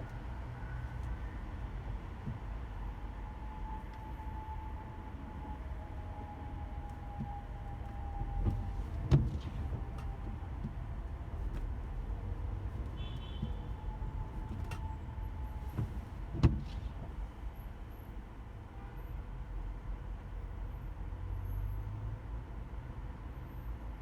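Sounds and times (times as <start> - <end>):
car engine and tyres rumbling: 0.0 - 24.0
sharp knocks with low thump: 7.1 - 11.9, 12.7 - 14.8, 15.6 - 17.2.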